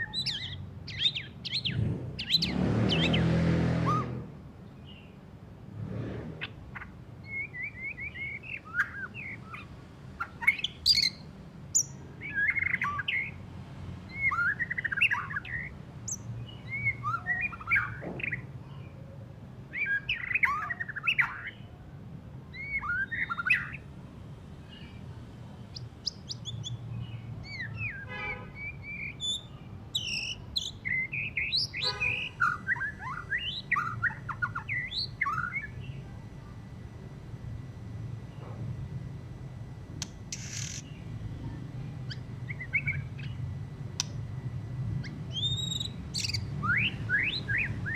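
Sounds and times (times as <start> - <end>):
bird singing whistles and chatter: 7.2 - 11.2, 14.1 - 18.4, 19.7 - 21.6, 22.6 - 23.8, 27.4 - 35.9, 40.3 - 41.0, 42.1 - 43.4, 45.0 - 47.9
bird harsh buzzing rattle: 40.2 - 40.9.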